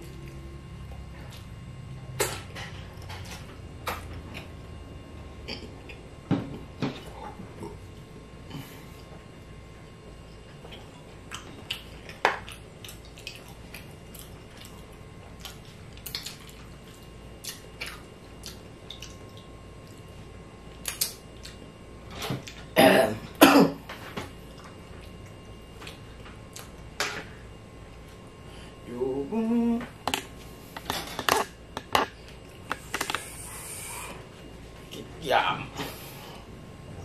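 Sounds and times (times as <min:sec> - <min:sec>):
wet chewing and mouth smacks: 0:10.7 - 0:20.1, 0:20.7 - 0:21.6, 0:24.5 - 0:26.8
person coughing: 0:22.8 - 0:23.8.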